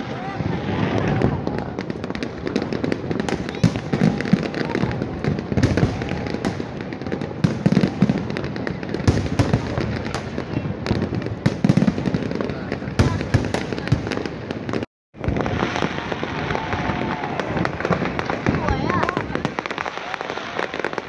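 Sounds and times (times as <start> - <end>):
firework crackle: 0.0 - 21.0.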